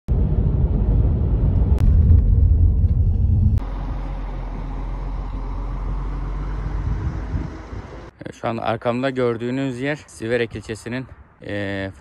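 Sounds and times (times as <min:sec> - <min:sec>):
low rumble: 0:00.1 - 0:08.1.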